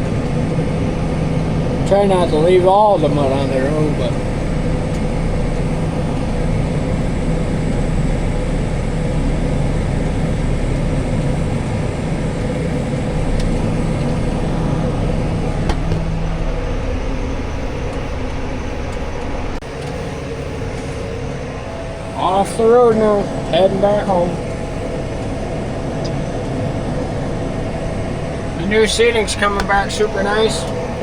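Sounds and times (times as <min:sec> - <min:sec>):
tractor engine drone: 0:00.0 - 0:31.0.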